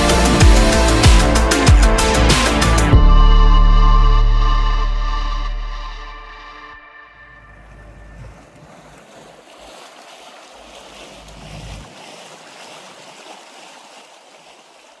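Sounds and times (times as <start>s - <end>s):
water noise: 6.8s - 15.0s.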